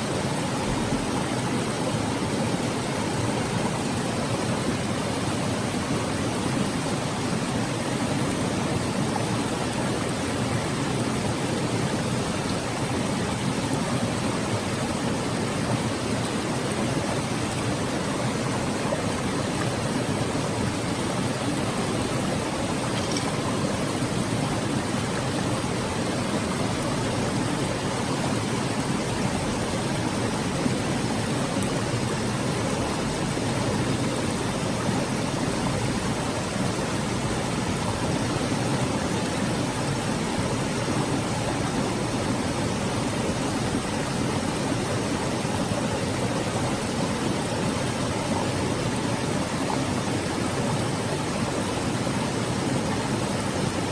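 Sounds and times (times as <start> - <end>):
stream babbling: 0.0 - 53.9.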